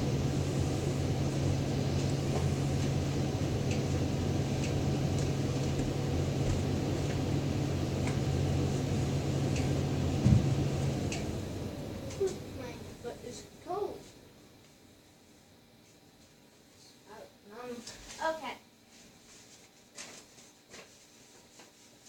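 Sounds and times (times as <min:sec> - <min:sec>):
machine humming: 0:00.0 - 0:14.6.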